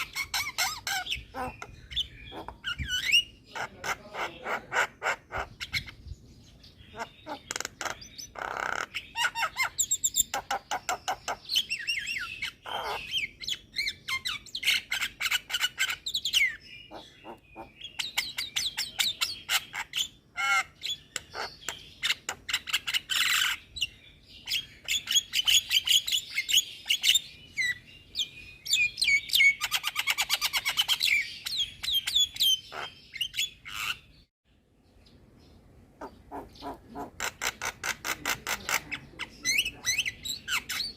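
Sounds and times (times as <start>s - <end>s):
myna chattering and squawking: 0.0s - 6.0s, 6.9s - 23.6s, 36.0s - 40.9s.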